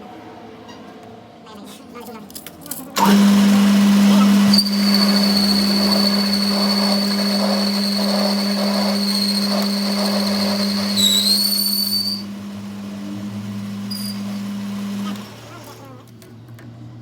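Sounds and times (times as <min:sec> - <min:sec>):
high-pitched machine whine: 0:03.0 - 0:15.8
machinery humming: 0:03.0 - 0:16.0.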